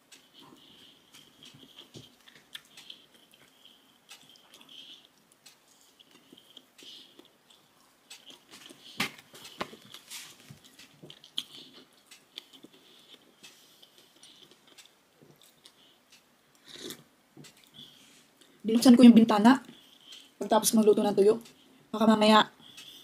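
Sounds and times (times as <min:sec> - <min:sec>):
person chewing food: 0:00.0 - 0:18.6, 0:19.6 - 0:20.5, 0:22.6 - 0:23.0.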